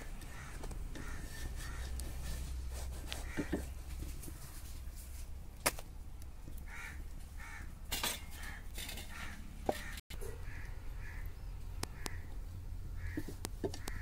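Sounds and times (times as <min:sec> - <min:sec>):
bird calling: 0:00.0 - 0:02.1, 0:08.3 - 0:12.4, 0:13.0 - 0:14.0.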